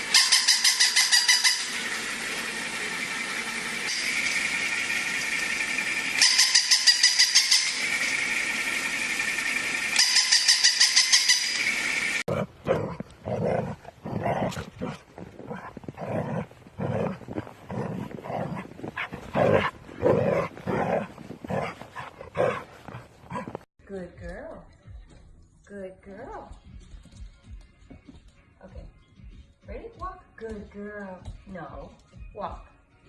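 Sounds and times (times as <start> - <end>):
fast rattling buzz: 0.0 - 12.3
mechanical hum with high whine: 0.0 - 12.4
dog barking: 18.2 - 23.6.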